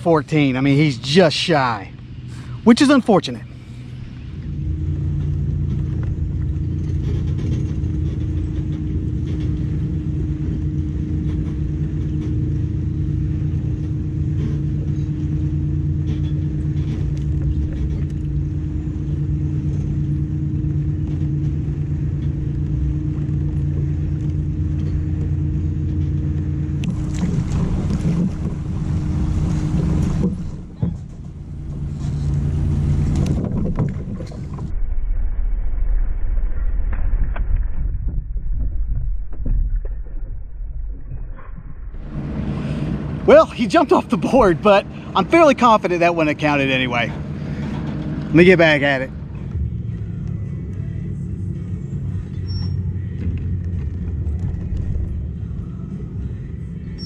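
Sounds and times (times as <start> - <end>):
boat engine droning: 0.0 - 35.3, 36.6 - 57.0.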